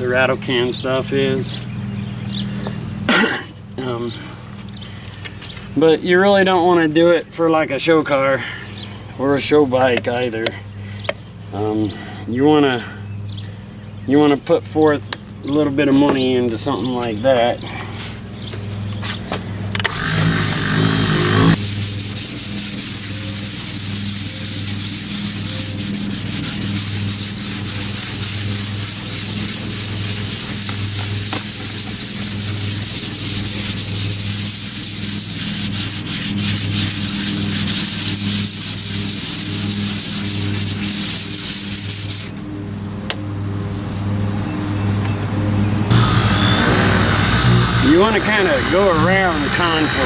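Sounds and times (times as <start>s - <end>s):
sandpaper rubbing by hand: 19.0s - 43.0s, 43.7s - 45.1s, 45.9s - 50.0s.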